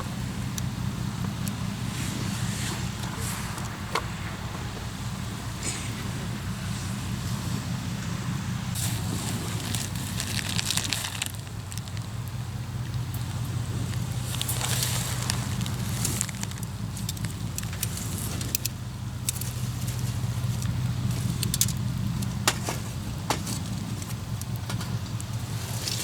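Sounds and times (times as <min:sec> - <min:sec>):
steady low rumble: 0:00.0 - 0:26.0
wood fire crackling: 0:00.0 - 0:26.0.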